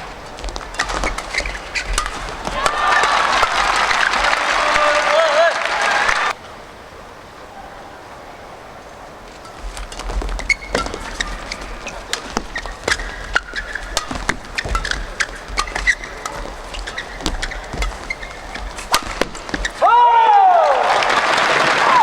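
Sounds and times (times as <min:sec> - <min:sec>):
footfalls thudding: 0:00.0 - 0:05.0, 0:09.5 - 0:20.0
rackets hitting shuttlecock: 0:00.0 - 0:05.0, 0:09.4 - 0:20.0
shoes squeaking on court floor: 0:00.0 - 0:05.2, 0:09.2 - 0:20.0.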